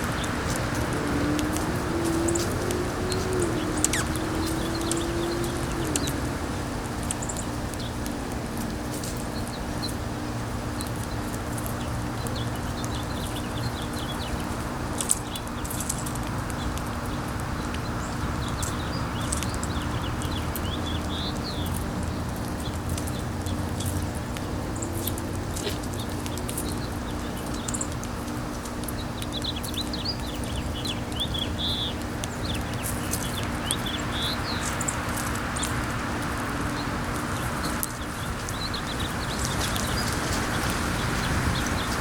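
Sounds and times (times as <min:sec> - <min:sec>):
wind noise: 0:00.0 - 0:09.4, 0:28.5 - 0:42.0
small birds chirping: 0:00.0 - 0:42.0.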